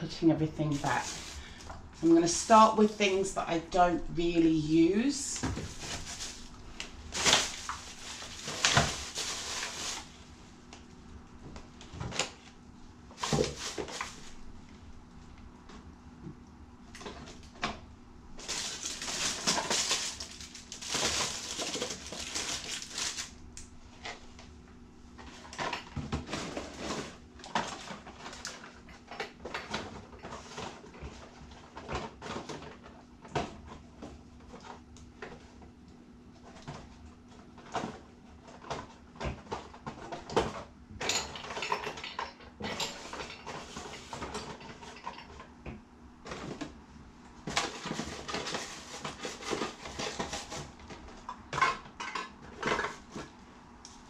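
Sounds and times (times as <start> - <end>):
rustling: 0.7 - 2.6, 5.0 - 10.5, 13.2 - 14.5, 18.4 - 23.4
household items knocking and clattering: 7.1 - 10.0, 13.2 - 14.2, 37.6 - 46.7.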